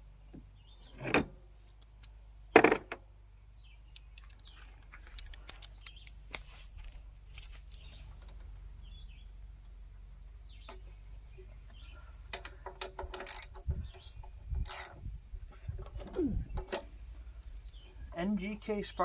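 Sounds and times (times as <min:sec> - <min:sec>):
ratchet wrench clicking: 0:12.3 - 0:13.7, 0:14.3 - 0:15.0.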